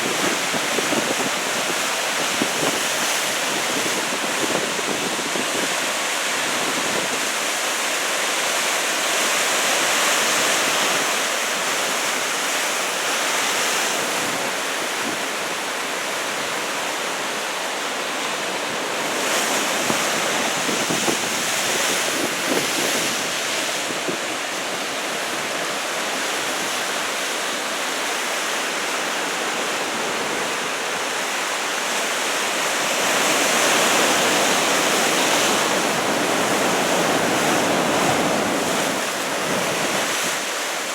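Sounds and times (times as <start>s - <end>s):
waves breaking: 0.0s - 40.9s.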